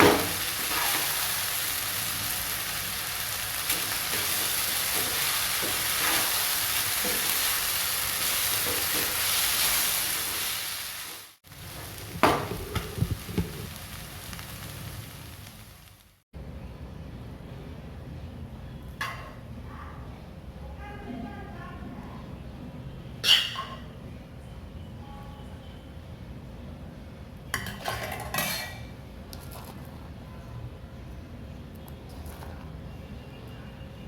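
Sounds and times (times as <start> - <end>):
fried rice sizzling in a pan: 0.0 - 16.2.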